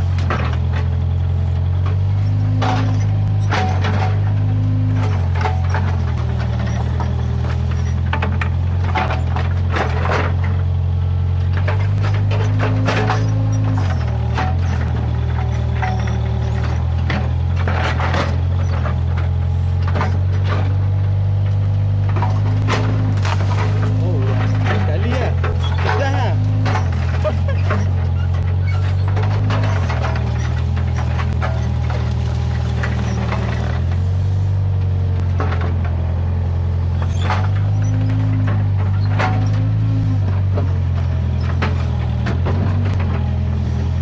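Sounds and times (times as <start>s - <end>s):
diesel engine running: 0.0s - 44.0s
sharp knocks and cracks: 11.4s - 34.1s.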